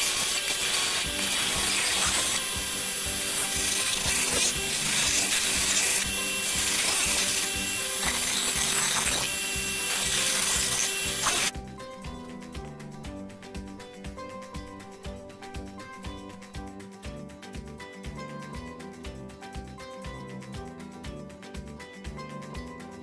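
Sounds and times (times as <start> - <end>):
tool rasping on metal: 0.0 - 15.0
background music: 0.0 - 23.0.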